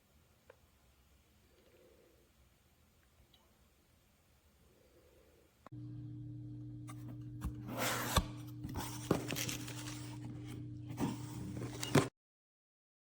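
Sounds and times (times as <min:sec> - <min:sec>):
low hum: 0:05.7 - 0:12.1
handling noise rubbing: 0:07.0 - 0:12.1.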